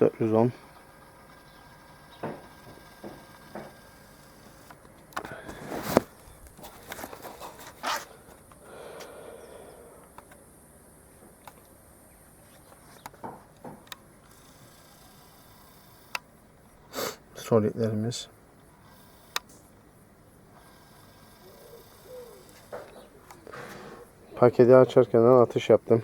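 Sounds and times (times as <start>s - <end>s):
sharp clicks and knocks from handling: 4.4s - 8.6s
soft rustle: 5.3s - 8.3s.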